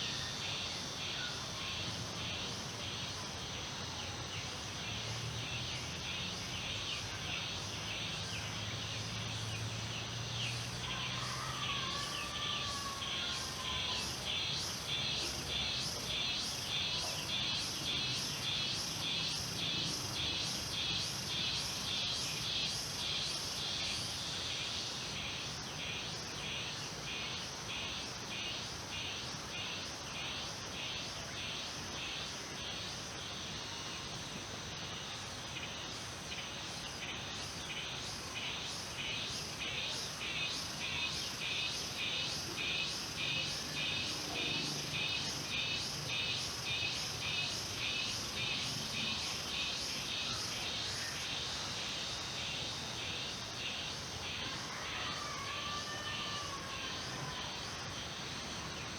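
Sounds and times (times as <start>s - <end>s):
insects chirping rhythmically: 13.2s - 54.8s.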